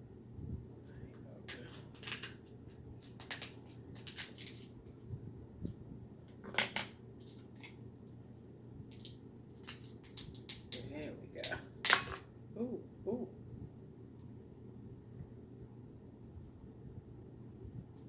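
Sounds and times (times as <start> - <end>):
crab shell cracking: 1.5 - 4.8, 8.9 - 12.2.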